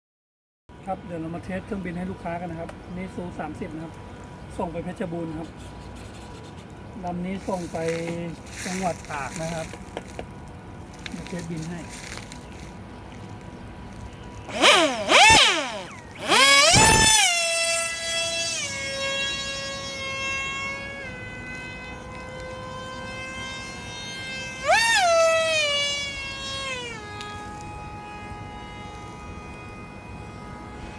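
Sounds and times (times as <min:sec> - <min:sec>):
electric motor and propeller whining: 0:06.0 - 0:30.9.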